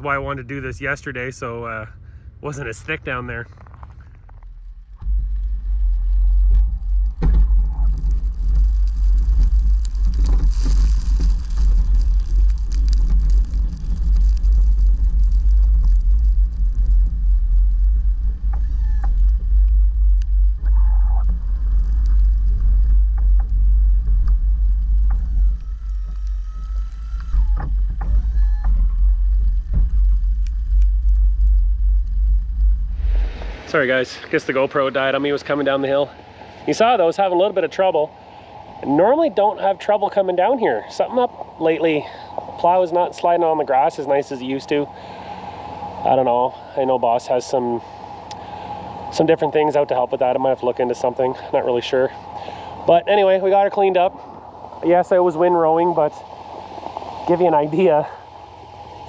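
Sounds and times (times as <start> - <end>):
truck engine low rumble: 0.0 - 59.0
snowplow knocks and clatters: 2.8 - 25.4, 27.6 - 32.7.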